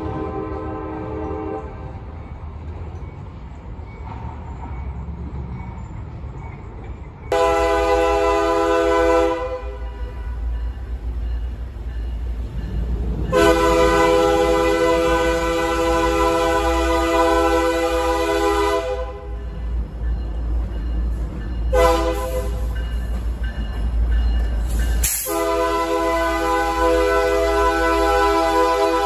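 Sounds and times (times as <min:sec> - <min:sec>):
locomotive air horn: 0:00.0 - 0:02.0, 0:07.3 - 0:10.4, 0:13.3 - 0:19.4, 0:21.7 - 0:22.7, 0:25.0 - 0:29.0
train rumble: 0:00.0 - 0:29.0.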